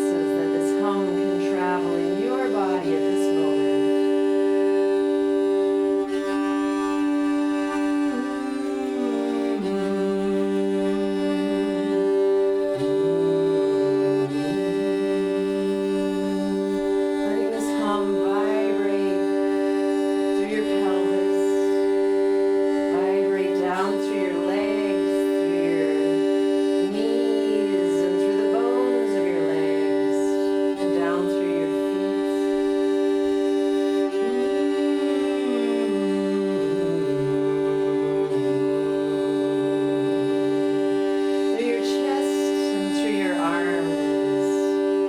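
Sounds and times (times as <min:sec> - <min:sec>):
steady two-note drone: 0:00.0 - 0:45.0
wordless voice sliding: 0:15.8 - 0:19.5, 0:22.8 - 0:26.2, 0:26.9 - 0:32.6, 0:41.5 - 0:45.0.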